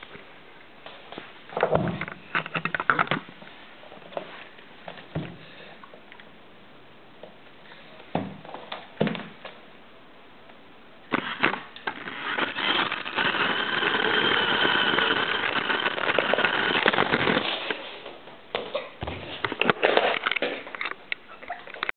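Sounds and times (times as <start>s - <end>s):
toy car electric motor whining: 11.1s - 17.6s.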